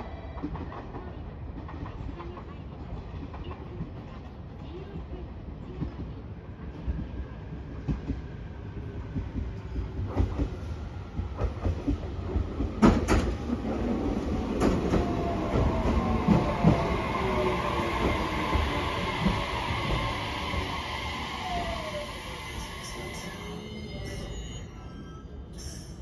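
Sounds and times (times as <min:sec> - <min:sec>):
train whine: 0:07.9 - 0:26.0
train wheels clicking over rail joints: 0:09.1 - 0:16.9.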